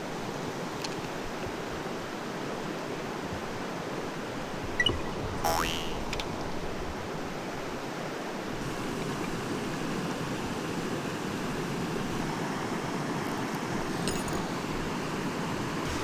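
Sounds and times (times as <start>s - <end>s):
stream water rushing: 0.1s - 16.0s.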